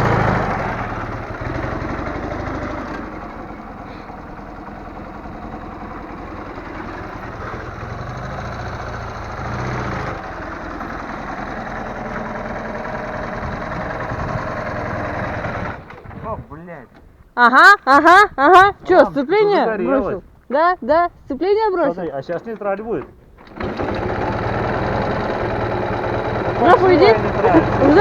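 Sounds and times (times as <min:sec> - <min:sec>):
motorcycle engine idling: 0:00.0 - 0:16.5, 0:23.2 - 0:28.0.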